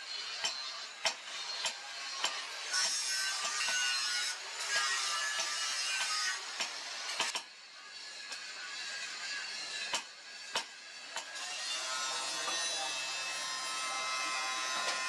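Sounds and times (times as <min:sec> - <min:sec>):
sharp clicks and knocks: 0:00.4 - 0:03.8, 0:05.4 - 0:07.5.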